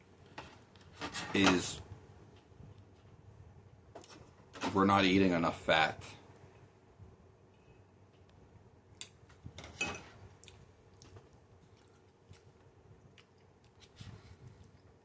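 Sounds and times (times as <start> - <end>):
person chewing: 10.3 - 15.0.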